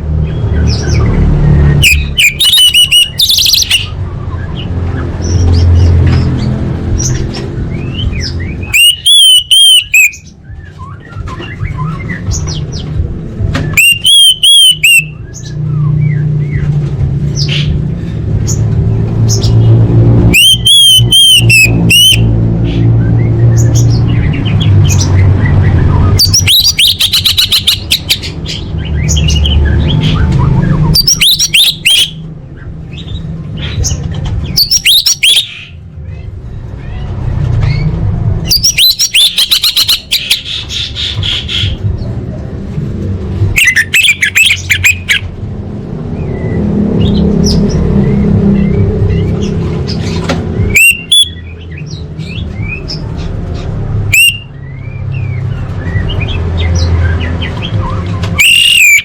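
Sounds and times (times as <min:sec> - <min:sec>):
bird chattering calls: 0:01.8 - 0:04.0, 0:08.1 - 0:10.3, 0:23.6 - 0:32.2, 0:38.5 - 0:41.8, 0:43.6 - 0:45.3.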